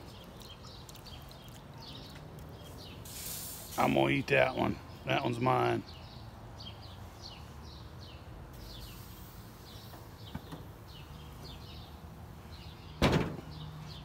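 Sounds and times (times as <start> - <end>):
birds chirping: 0.0 - 14.0
grill lid banging shut: 13.0 - 13.5.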